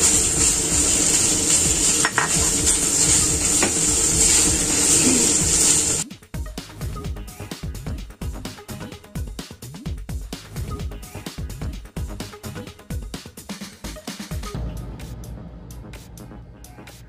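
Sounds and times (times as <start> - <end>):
meat sizzling in hot oil: 0.0 - 6.0
background music: 0.0 - 17.0.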